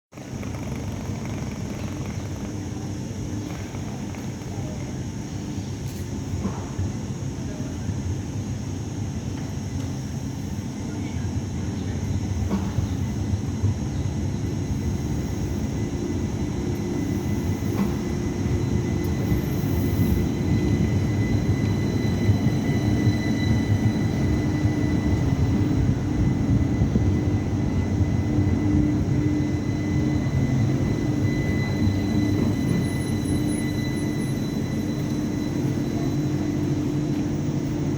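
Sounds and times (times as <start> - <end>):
tram high whine: 0.1 - 37.9
tram low rumble: 0.1 - 37.9.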